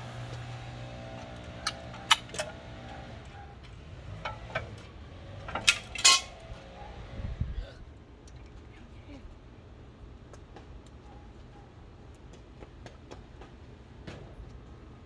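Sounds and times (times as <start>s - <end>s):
metal brake parts clinking: 1.2s - 3.0s, 4.0s - 6.7s.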